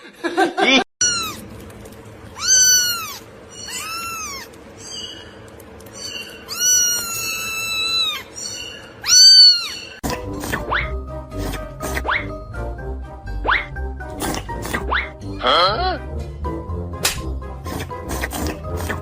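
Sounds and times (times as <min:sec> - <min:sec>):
cat meowing: 0:01.0 - 0:01.4, 0:02.4 - 0:05.1, 0:06.0 - 0:10.0.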